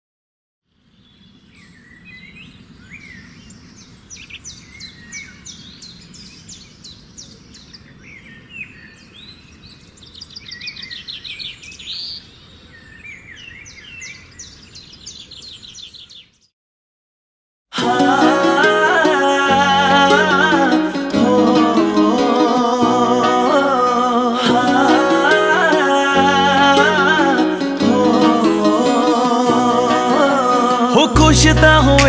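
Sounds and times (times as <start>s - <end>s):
small birds chirping and trilling: 0.7s - 16.5s.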